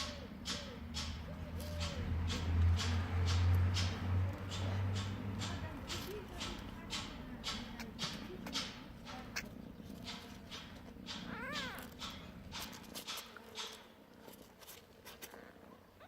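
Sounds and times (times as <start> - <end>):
kittens scratchy rustling: 1.6 - 16.0
kitten mewing: 11.1 - 12.0.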